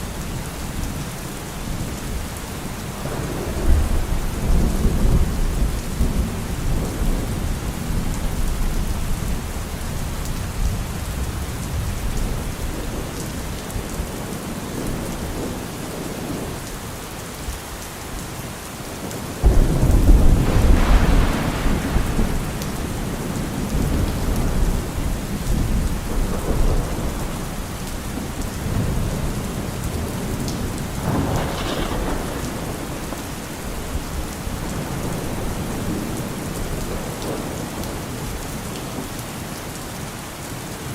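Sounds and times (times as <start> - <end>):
heavy rain: 0.0 - 40.9
thunder rumbling: 2.0 - 16.7, 19.3 - 39.1
loud thunderclap: 19.4 - 38.0.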